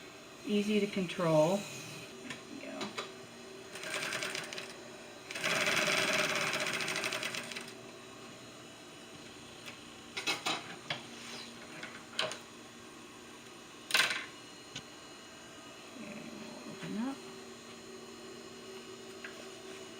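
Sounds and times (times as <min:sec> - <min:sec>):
sewing machine stitching: 0:03.8 - 0:07.7.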